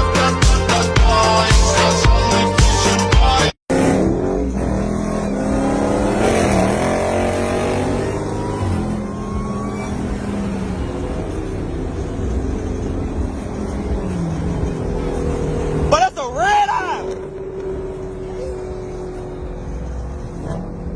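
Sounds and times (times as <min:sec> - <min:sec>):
car engine revving: 0:00.0 - 0:20.9.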